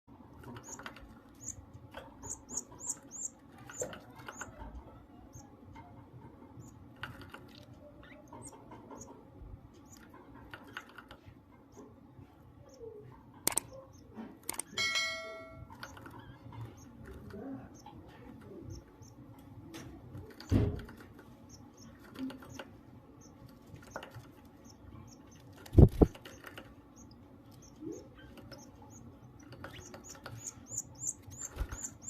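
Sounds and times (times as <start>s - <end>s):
sharp clicks: 13.4s - 13.8s, 14.4s - 14.8s
chick cheeping: 27.0s - 32.0s.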